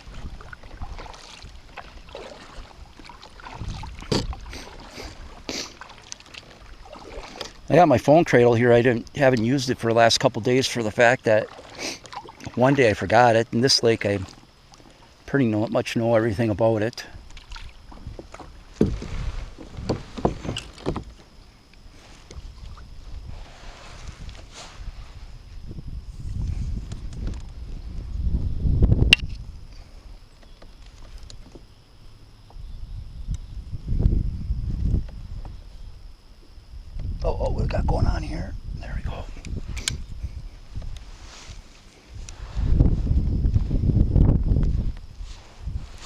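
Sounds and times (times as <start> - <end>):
water washing: 0.0 - 7.6
wind: 0.0 - 46.0.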